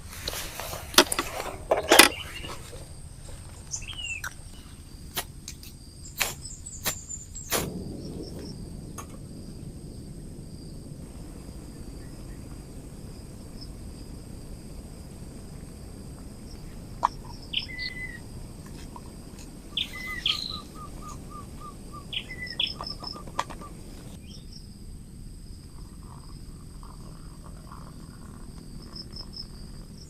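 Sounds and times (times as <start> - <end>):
insects droning: 0.0 - 30.0
sharp clicks and knocks: 0.2 - 2.9.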